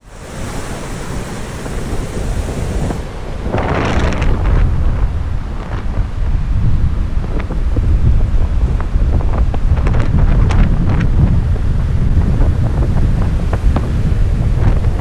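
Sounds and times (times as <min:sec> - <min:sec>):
rough stormy sea: 0:00.0 - 0:15.0
surf rushing: 0:00.0 - 0:15.0
wind buffeting microphone: 0:00.0 - 0:15.0.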